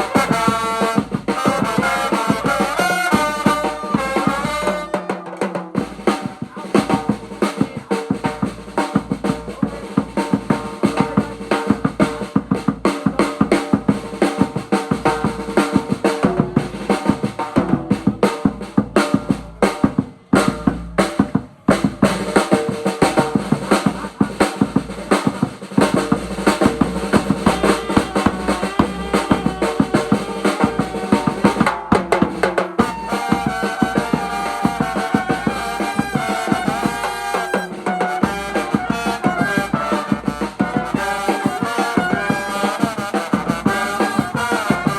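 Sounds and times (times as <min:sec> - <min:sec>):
fast drum kit beats: 0:00.0 - 0:44.9
held instrument notes: 0:24.8 - 0:31.8.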